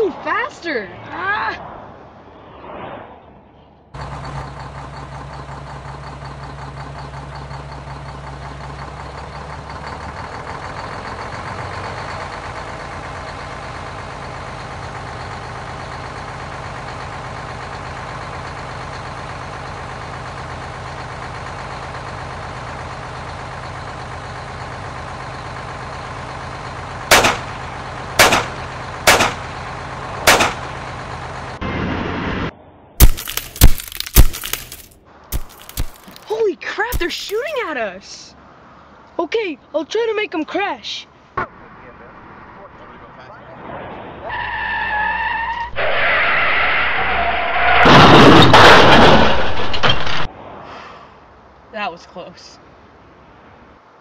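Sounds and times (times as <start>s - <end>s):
car engine and road noise: 0.0s - 54.0s
loud gunshots: 27.1s - 27.5s, 28.2s - 28.5s, 29.1s - 29.4s, 30.3s - 30.6s.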